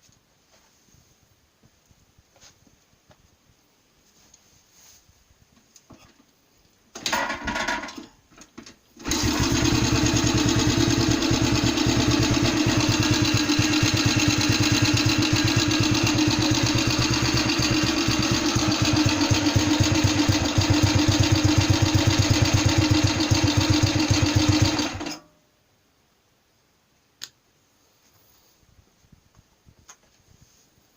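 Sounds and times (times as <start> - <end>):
two-stroke engine starting and running: 7.0 - 8.0, 9.0 - 25.2.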